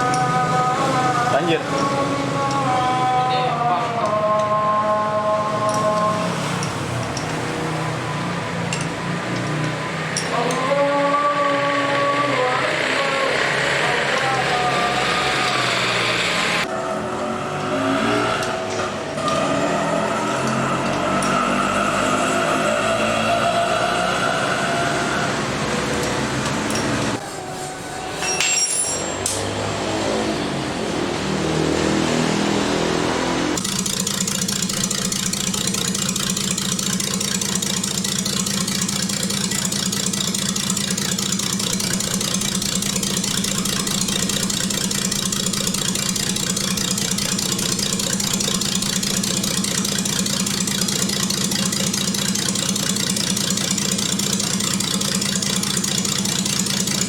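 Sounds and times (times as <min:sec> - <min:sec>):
car engine running: 0:29.8 - 0:57.0.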